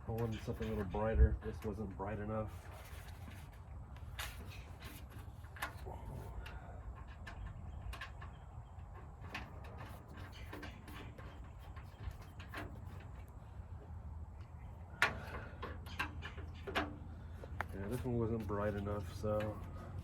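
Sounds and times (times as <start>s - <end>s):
low steady rumble: 0.0s - 20.0s
clicks and taps of handled metal: 14.4s - 19.7s.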